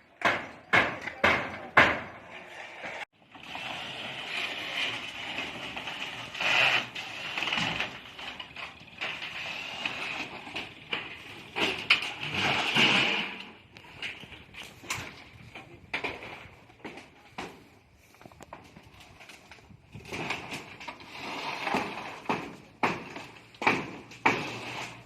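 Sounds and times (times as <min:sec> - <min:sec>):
knocks and clatter: 0:04.8 - 0:17.7, 0:18.4 - 0:25.0.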